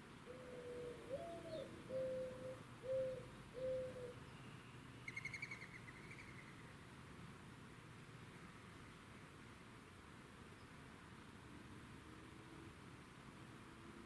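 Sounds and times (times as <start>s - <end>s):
dove cooing: 0.3s - 4.2s.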